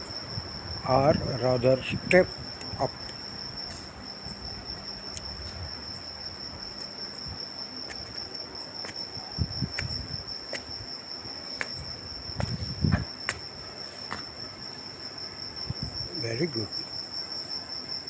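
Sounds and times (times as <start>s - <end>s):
cricket trilling: 0.0s - 18.0s
soft low thumps: 11.6s - 13.4s.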